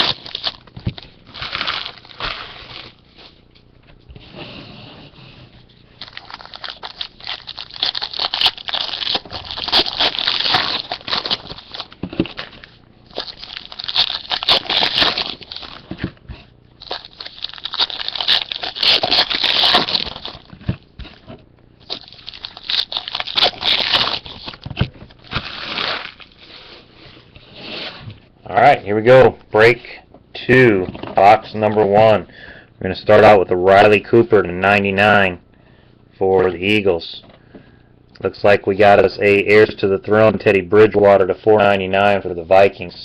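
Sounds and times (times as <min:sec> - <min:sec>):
plastic and foil wrapping crinkling: 0:00.0 - 0:03.4, 0:05.8 - 0:16.2, 0:16.8 - 0:27.2.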